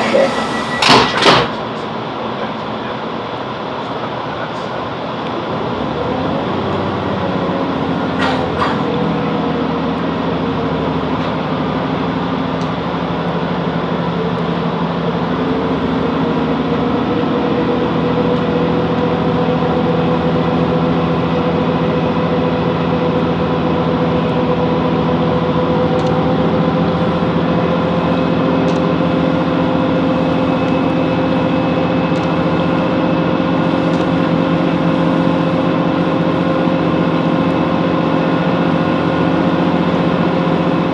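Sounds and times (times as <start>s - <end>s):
brief falling tone: 0.0s - 1.3s
train diesel engine running: 0.0s - 40.9s.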